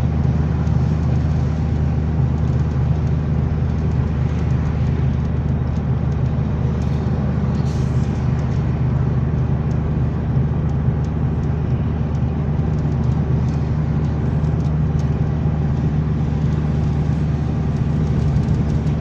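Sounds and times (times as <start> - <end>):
car engine and road drone: 0.0 - 19.0.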